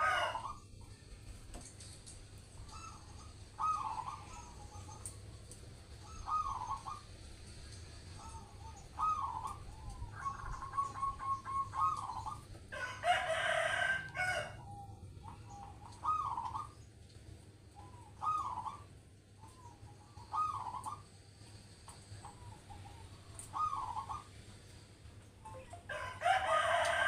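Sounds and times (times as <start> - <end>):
dove cooing: 0.0 - 1.2, 2.5 - 16.9, 17.7 - 21.1, 21.9 - 24.5.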